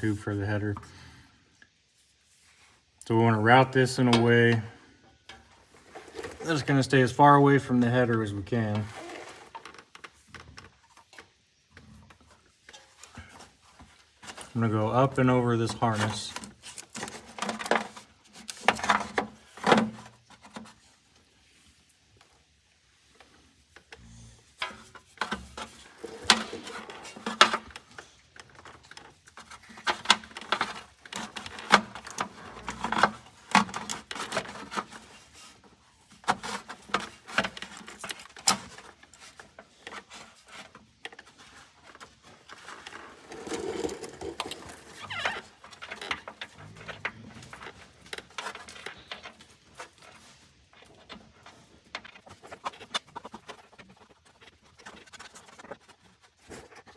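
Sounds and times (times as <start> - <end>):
hand tools clicking and clinking: 42.6 - 49.9.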